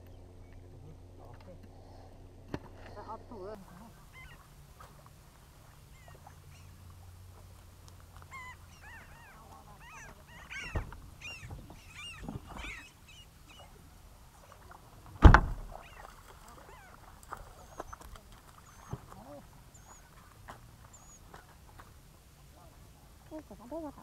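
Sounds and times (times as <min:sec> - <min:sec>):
birds calling: 0:00.0 - 0:24.0
faint low rumble: 0:00.0 - 0:24.0
loud thump: 0:15.2 - 0:15.8.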